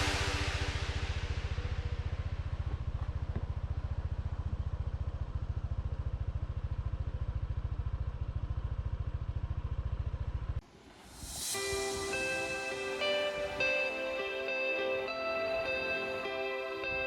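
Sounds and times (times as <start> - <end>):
scooter engine idling: 1.5 - 10.6.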